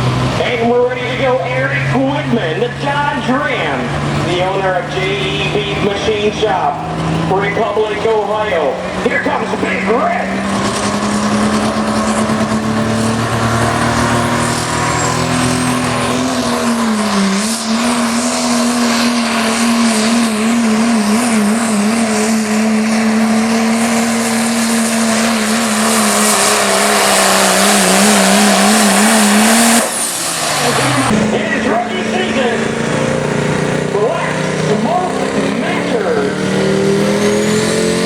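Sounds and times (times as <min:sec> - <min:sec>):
diesel truck engine at full throttle: 0:00.0 - 0:38.0.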